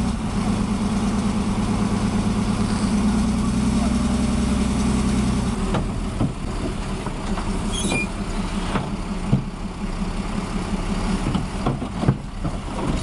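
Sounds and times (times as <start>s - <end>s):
heavy vehicle engine running: 0.0s - 13.0s
high squeak: 7.7s - 8.5s.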